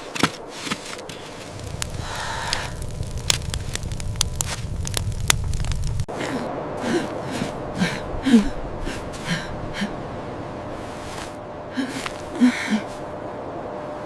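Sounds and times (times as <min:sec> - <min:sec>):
crackling: 0:00.2 - 0:07.2.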